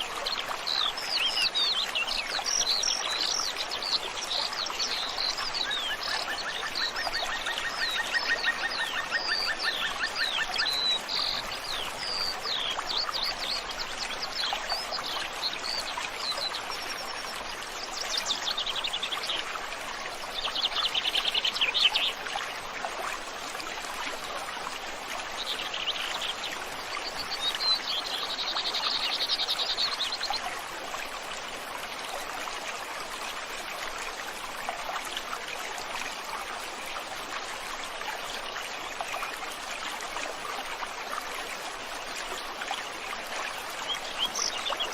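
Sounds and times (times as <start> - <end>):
stream flowing: 0.0 - 44.9.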